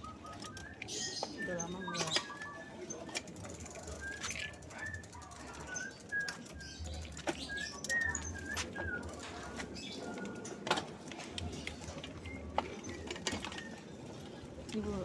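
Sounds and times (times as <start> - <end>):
small birds chirping: 0.0 - 3.2, 3.8 - 10.6.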